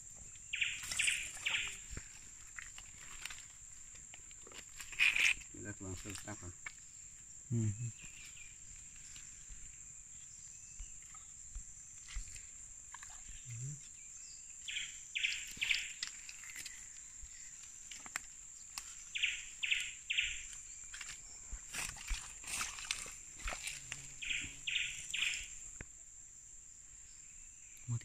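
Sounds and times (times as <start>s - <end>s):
high insect drone: 0.0s - 28.0s
bird calling: 0.5s - 1.9s, 19.1s - 20.5s, 24.1s - 25.6s.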